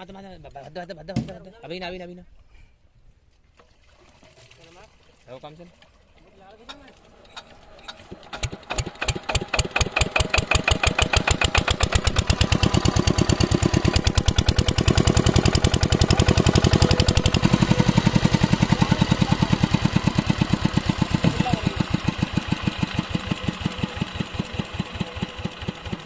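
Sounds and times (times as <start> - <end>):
diesel engine starting and knocking: 6.4 - 26.0.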